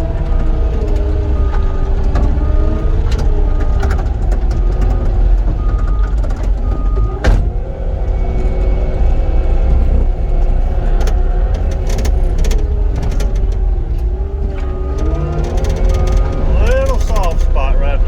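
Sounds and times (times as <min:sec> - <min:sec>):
diesel engine running: 0:00.0 - 0:18.0
backup alarm beeping: 0:00.1 - 0:07.3, 0:13.7 - 0:18.0.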